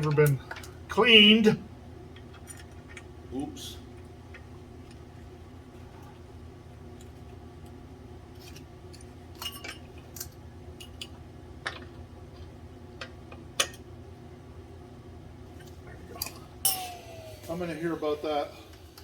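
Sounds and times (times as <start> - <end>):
metal tools clinking: 9.4 - 10.3.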